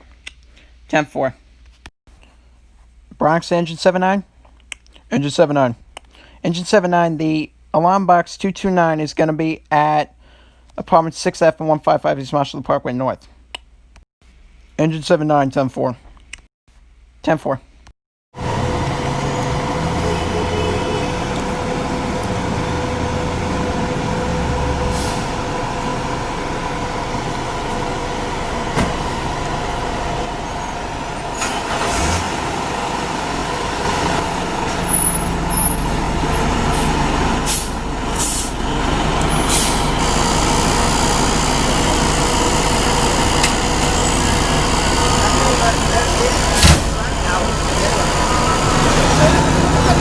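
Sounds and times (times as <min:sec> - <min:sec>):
diesel engine rumble: 0:18.4 - 0:50.0
air brake hisses: 0:24.8 - 0:25.4, 0:36.7 - 0:38.6, 0:39.3 - 0:39.9.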